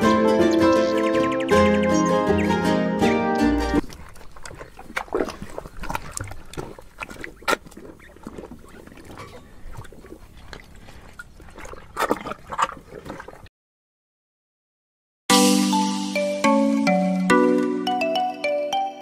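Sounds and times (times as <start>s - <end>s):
cattle chewing feed: 3.7s - 13.5s.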